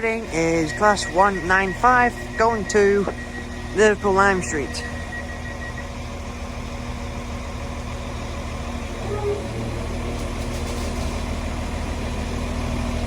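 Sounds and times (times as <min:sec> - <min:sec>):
train diesel engines droning: 0:00.0 - 0:13.0.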